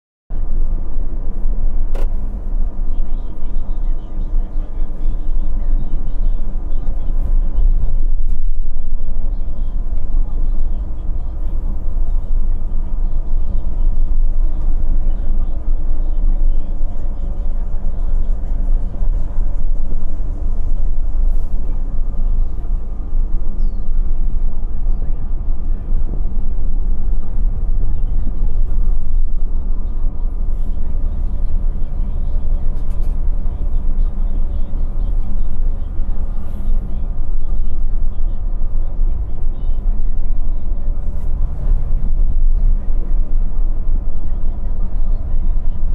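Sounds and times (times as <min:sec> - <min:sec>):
bus diesel engine droning: 0:00.3 - 0:45.9
road and drivetrain noise: 0:00.3 - 0:45.9.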